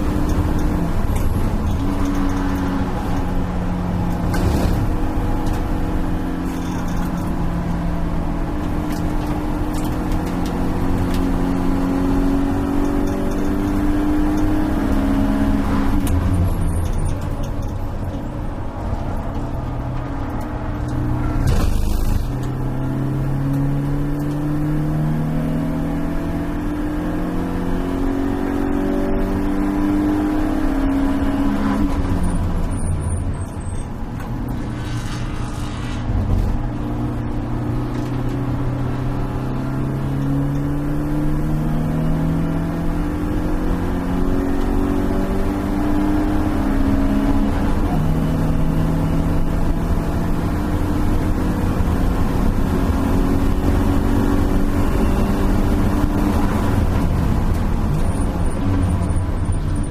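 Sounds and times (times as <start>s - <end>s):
car engine revving: 0.0s - 17.7s, 18.6s - 59.9s
road and tyre noise: 0.0s - 59.9s
loud rush of noise: 34.5s - 36.8s.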